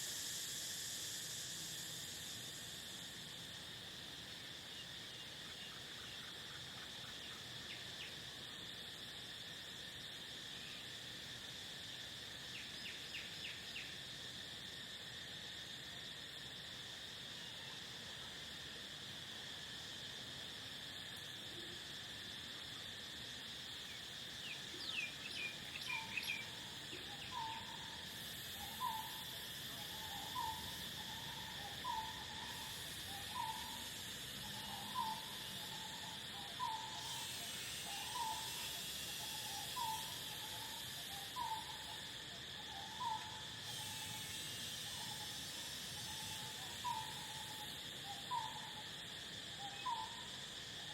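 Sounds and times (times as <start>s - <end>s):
crickets trilling: 0.0s - 50.9s
bird chirps: 24.4s - 26.6s.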